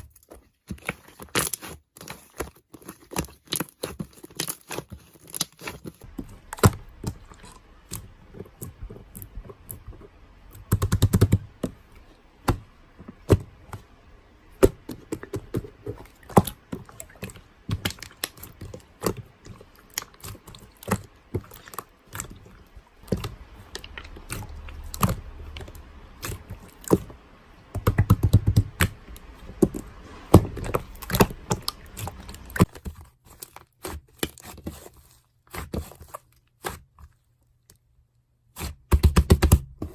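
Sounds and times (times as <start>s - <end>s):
crinkling and scraping: 0.0s - 27.7s, 28.7s - 37.8s.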